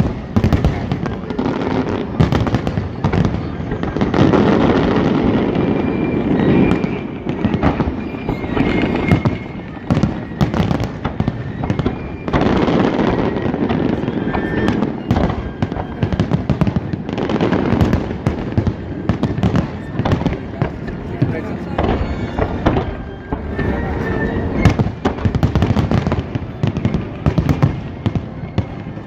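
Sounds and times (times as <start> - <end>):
fireworks booms: 0.0 - 29.0
fireworks crackling pops: 0.0 - 29.0.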